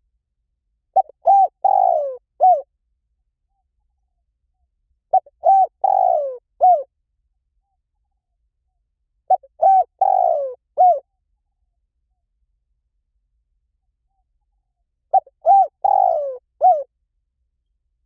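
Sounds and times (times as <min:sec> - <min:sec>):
dove cooing: 0:01.0 - 0:02.7, 0:05.1 - 0:06.9, 0:09.3 - 0:11.1, 0:15.1 - 0:16.9.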